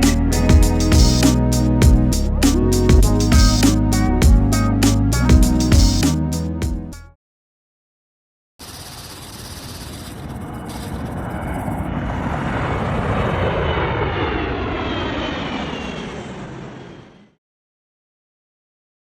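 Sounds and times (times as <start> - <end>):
jet engines of landing airliner: 8.6 - 17.4.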